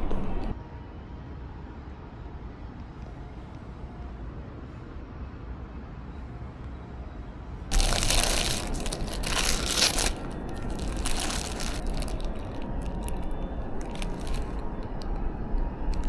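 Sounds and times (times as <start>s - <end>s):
paper wrapper crinkling: 7.7s - 16.0s.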